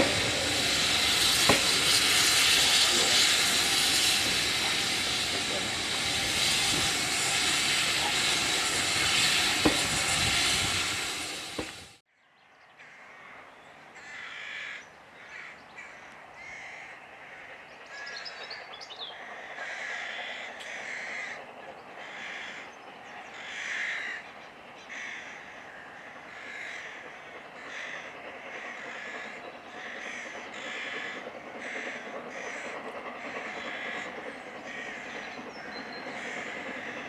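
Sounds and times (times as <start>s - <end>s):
steam train hissing: 0.0s - 12.0s, 24.9s - 37.0s
crows cawing: 14.0s - 18.1s, 19.2s - 21.4s, 22.0s - 22.7s, 23.3s - 24.3s, 24.9s - 35.2s.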